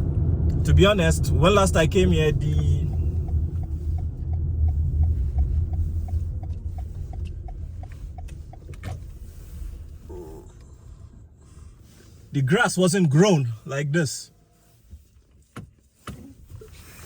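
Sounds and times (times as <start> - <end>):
car road and engine rumble: 0.0 - 17.0
turn signal ticking: 1.3 - 10.0.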